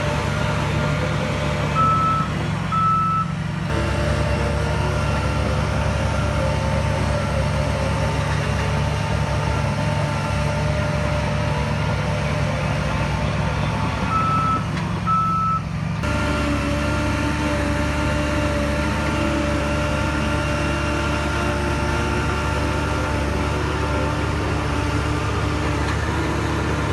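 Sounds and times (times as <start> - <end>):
heavy diesel machinery running: 0.0 - 26.9
reversing alarm beeping: 1.8 - 3.3, 14.1 - 15.6.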